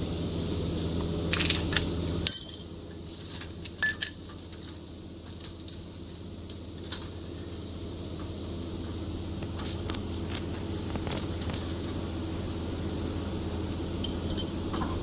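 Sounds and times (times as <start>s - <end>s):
metal tools clinking: 1.3s - 2.8s.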